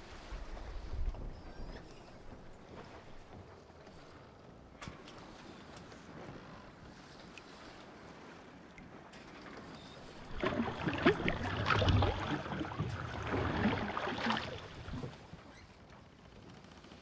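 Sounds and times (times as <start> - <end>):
kayak paddle splashing: 9.4 - 15.4.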